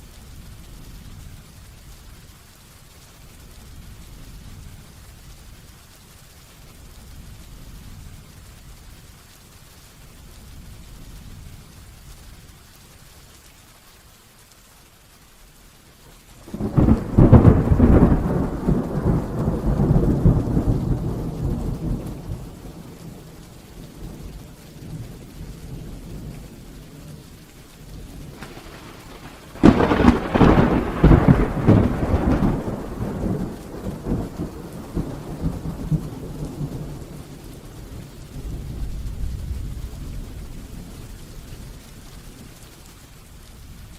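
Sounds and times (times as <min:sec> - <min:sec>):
heavy rain falling: 0:00.0 - 0:43.9
thunder claps rumbling: 0:16.4 - 0:41.5.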